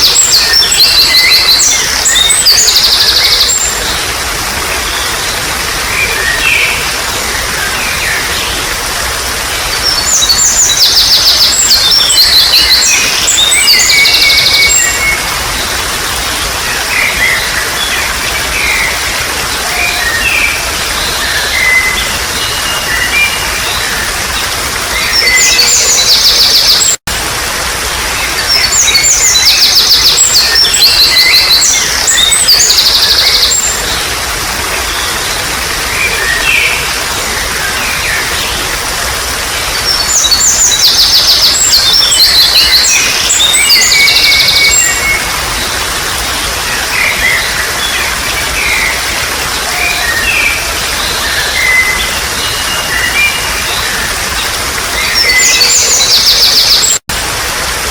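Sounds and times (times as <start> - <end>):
wild birds singing: 0.0 - 27.0, 28.1 - 57.0
flowing water babbling: 0.0 - 57.9.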